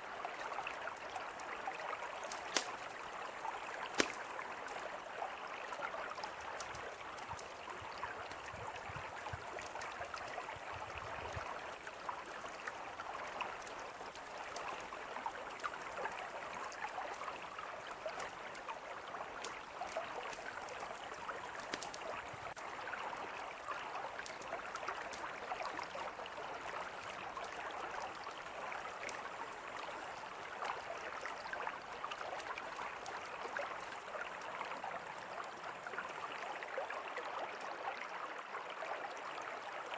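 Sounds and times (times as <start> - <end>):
river flowing: 0.0 - 39.9
campfire crackling: 2.1 - 4.9, 6.3 - 8.5, 19.3 - 22.6.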